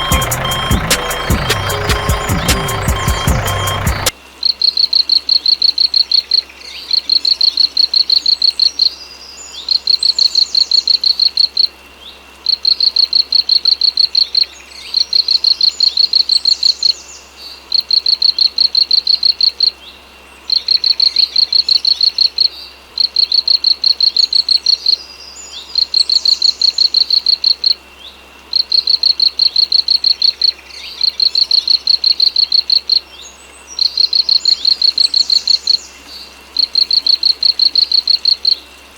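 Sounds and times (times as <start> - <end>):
insect chirping: 20.5 - 25.0, 25.6 - 33.1, 33.8 - 38.9.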